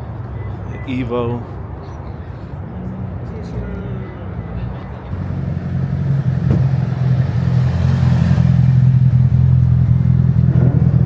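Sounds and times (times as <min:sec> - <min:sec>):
car engine running: 0:05.1 - 0:11.0.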